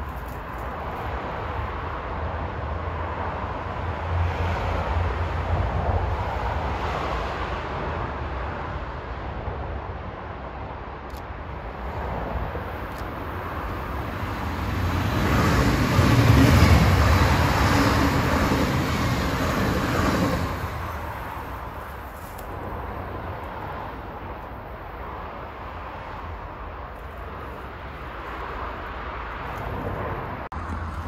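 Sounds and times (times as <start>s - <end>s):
train passing rumble: 11.4s - 31.0s.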